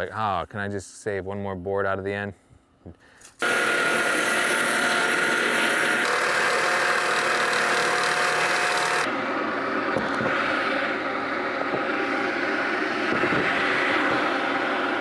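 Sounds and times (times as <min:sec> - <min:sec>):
sawmill engine whining: 0:03.4 - 0:15.0.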